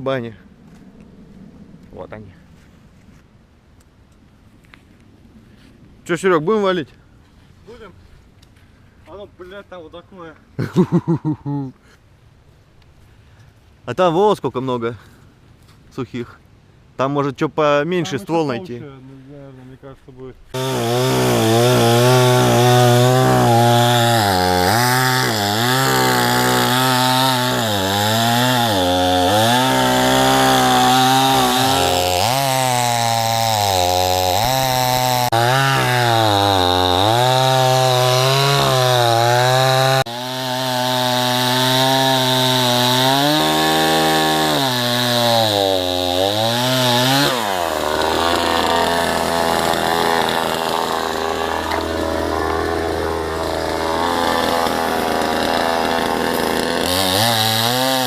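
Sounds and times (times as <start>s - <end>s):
chainsaw cutting wood: 20.5s - 58.0s.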